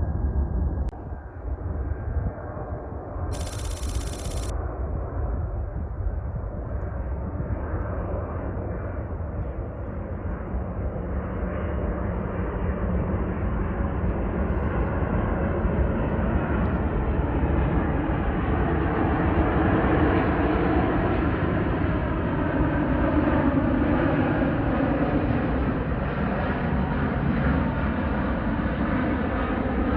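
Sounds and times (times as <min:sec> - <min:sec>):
jet engine rushing: 0:03.3 - 0:04.5.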